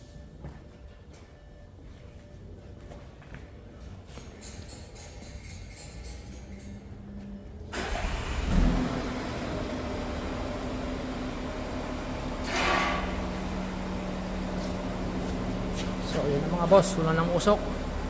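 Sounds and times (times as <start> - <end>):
diesel engine cranking and idling: 6.8 - 18.0.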